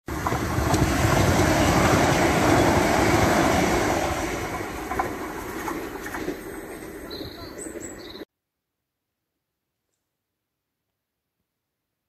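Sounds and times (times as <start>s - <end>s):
electric train rumbling: 0.0s - 8.3s.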